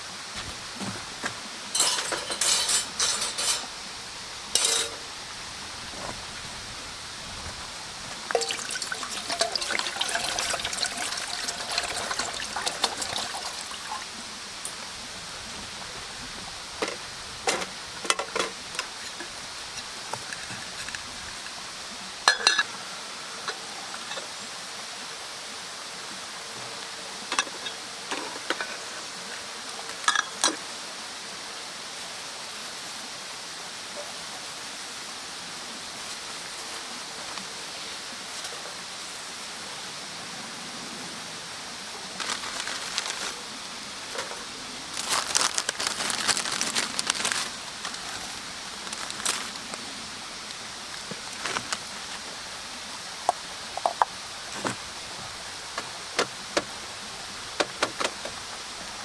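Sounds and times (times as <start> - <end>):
wood fire crackling: 0.3 - 1.4, 44.8 - 49.9.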